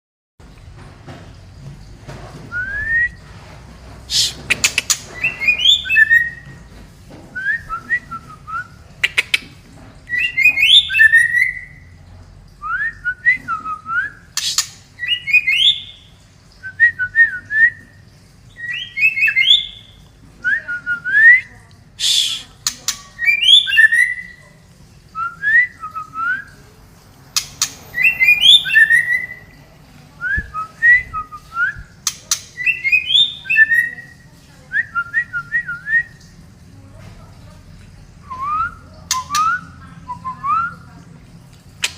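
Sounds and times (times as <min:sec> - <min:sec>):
bird singing whistled phrases: 0:05.2 - 0:06.5, 0:10.1 - 0:11.9, 0:12.6 - 0:17.9, 0:18.5 - 0:24.4, 0:27.9 - 0:29.5, 0:30.2 - 0:36.2, 0:38.2 - 0:40.9
sharp bird clicks: 0:09.0 - 0:09.5.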